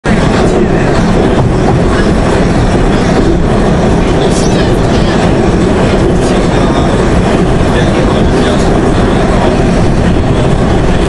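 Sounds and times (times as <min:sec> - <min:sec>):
subway train rumbling on track: 0:00.0 - 0:11.0.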